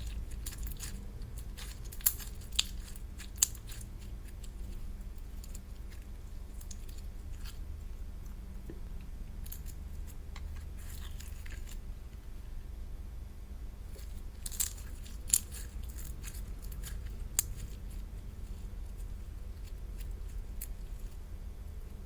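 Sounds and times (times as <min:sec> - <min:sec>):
slime clicking and crackling: 0:00.0 - 0:07.6, 0:14.4 - 0:20.8
low steady hum: 0:00.0 - 0:22.0.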